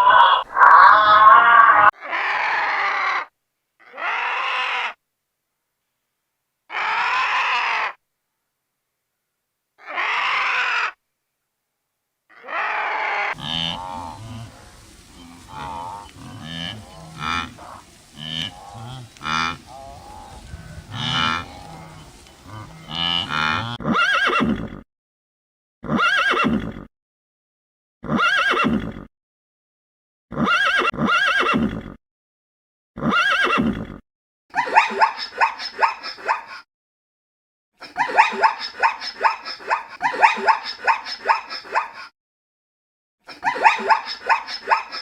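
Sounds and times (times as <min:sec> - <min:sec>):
farm animals calling: 0:00.0 - 0:03.2, 0:12.3 - 0:24.5.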